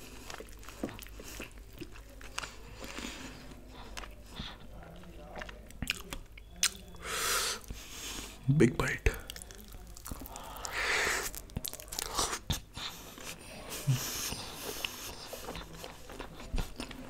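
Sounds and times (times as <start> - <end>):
person chewing food: 0.0 - 8.4, 9.1 - 17.0
mouth clicks: 5.8 - 7.8.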